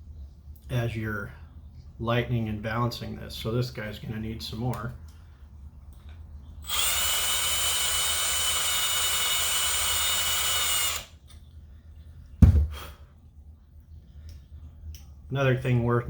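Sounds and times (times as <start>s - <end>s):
hand drill boring into metal: 6.6s - 11.1s
thump: 12.4s - 12.8s.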